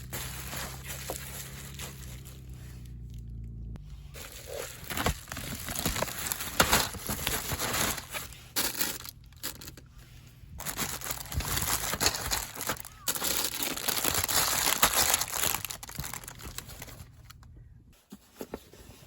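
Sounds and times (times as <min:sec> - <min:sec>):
plastic packaging crinkling: 0:00.0 - 0:02.6, 0:04.2 - 0:09.9, 0:10.6 - 0:17.4.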